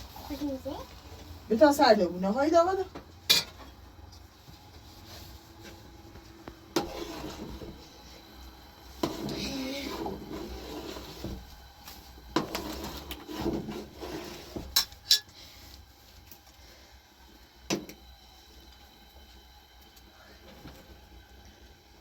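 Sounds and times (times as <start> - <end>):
dishes and utensils clinking: 3.3 - 3.7.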